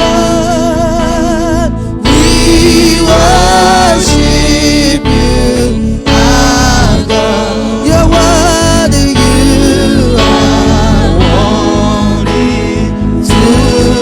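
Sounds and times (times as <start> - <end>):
gospel singing: 0.0 - 14.0.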